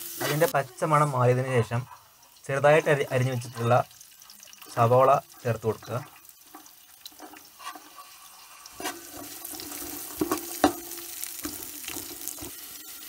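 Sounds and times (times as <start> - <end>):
metal spatula scraping pot: 0.0 - 3.8, 6.4 - 13.0
vegetables sizzling in hot oil: 0.0 - 13.0.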